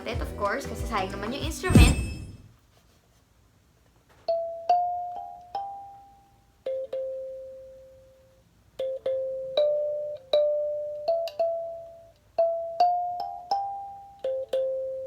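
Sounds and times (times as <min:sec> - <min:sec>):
kalimba notes: 0:08.8 - 0:15.0.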